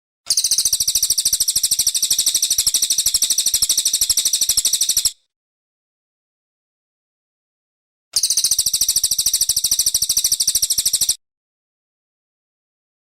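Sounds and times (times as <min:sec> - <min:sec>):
high-pitched bird trill: 0:00.3 - 0:05.2, 0:08.2 - 0:11.2.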